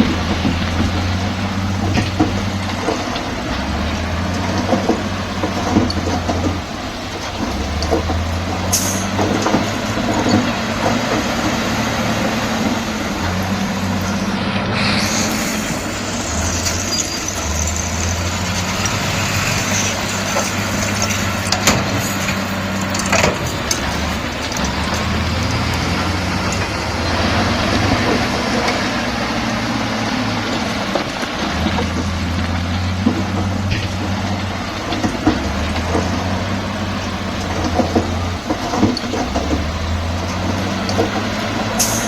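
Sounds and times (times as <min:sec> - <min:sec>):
hiss: 0:00.0 - 0:10.6, 0:14.0 - 0:24.8, 0:34.8 - 0:42.0
metal clanks: 0:00.0 - 0:29.6, 0:30.2 - 0:42.0
bulldozer diesel engine working: 0:00.0 - 0:42.0.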